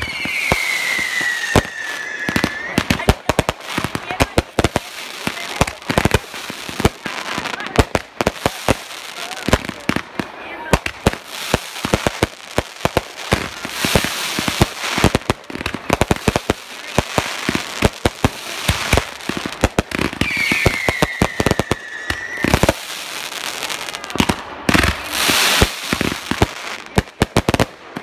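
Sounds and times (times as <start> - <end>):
falling firework whistle: 0.0 - 3.1, 20.2 - 22.8
fireworks banging and crackling: 0.0 - 28.0.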